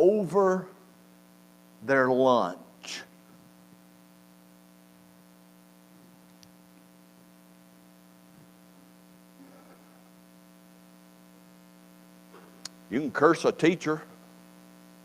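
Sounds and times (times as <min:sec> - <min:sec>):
electrical hum: 0:00.0 - 0:15.0
faint click: 0:12.6 - 0:12.8.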